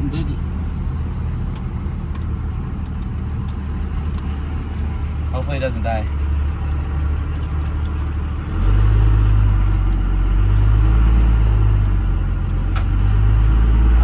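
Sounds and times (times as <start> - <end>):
diesel truck engine accelerating: 0.0 - 14.0.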